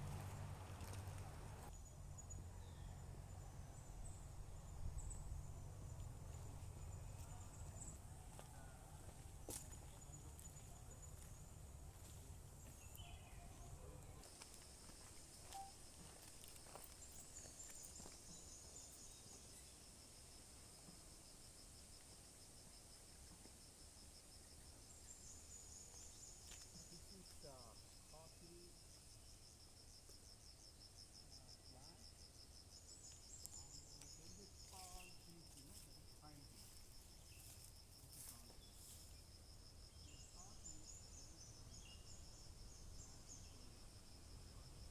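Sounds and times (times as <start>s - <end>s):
insect chirping: 0.0s - 44.9s
higher insect trill: 9.1s - 21.4s.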